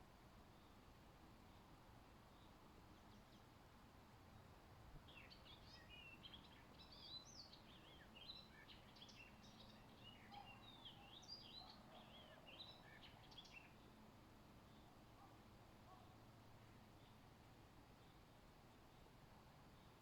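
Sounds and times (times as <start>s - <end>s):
songbird singing: 5.1s - 14.0s, 14.6s - 15.3s.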